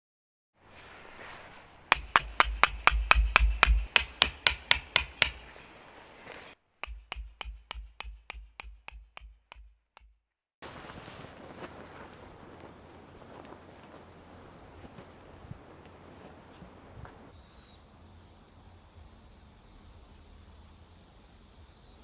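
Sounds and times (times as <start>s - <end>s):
hammer striking metal tent peg: 1.9s - 6.2s, 6.8s - 10.2s.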